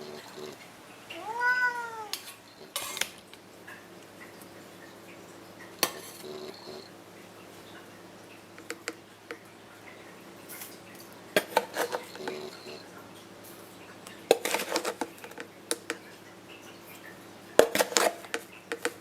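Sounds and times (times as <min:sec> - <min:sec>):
cat meowing: 0:01.1 - 0:02.2
dishes and cutlery clinking: 0:02.2 - 0:03.2, 0:11.4 - 0:12.8, 0:14.3 - 0:16.0, 0:17.6 - 0:19.0.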